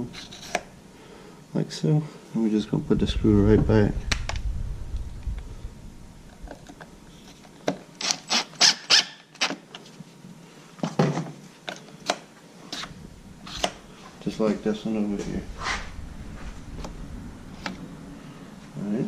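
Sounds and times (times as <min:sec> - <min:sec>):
screw squeaking into plastic: 0:08.0 - 0:09.6.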